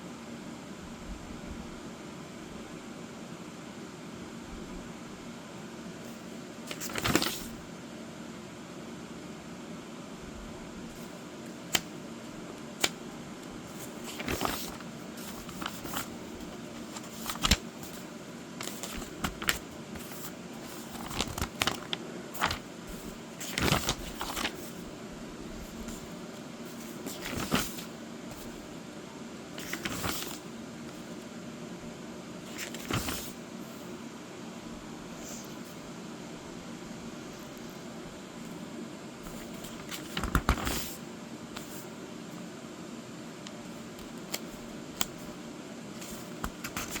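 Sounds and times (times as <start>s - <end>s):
room hum: 0.0s - 47.0s
paper pages turning: 6.7s - 7.6s, 10.9s - 12.0s, 12.8s - 24.9s, 25.6s - 28.7s, 29.6s - 31.2s, 32.5s - 33.4s, 39.3s - 41.0s, 43.8s - 45.4s, 46.0s - 47.0s.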